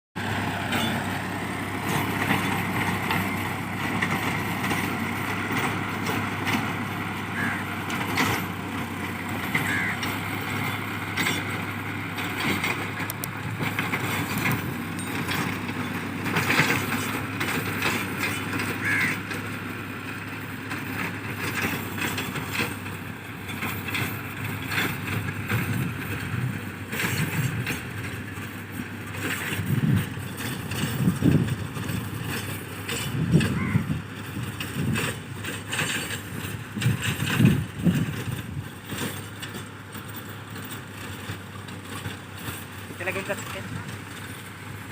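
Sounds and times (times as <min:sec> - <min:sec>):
road noise rumble: 0:00.2 - 0:44.9
tractor engine running: 0:00.2 - 0:44.9.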